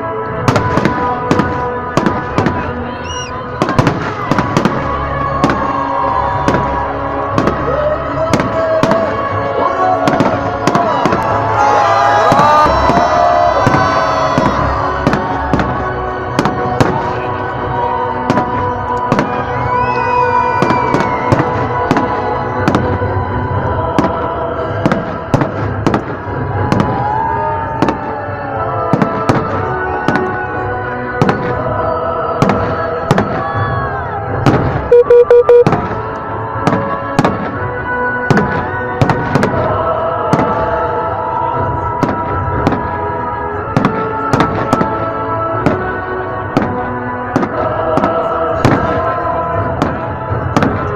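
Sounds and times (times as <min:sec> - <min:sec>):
music playing: 0:00.0 - 0:50.9
fireworks bangs: 0:00.4 - 0:02.8.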